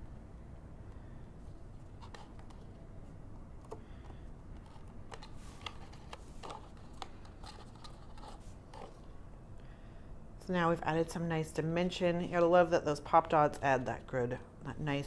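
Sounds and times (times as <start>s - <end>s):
paper and chipboard handled: 1.5s - 9.1s.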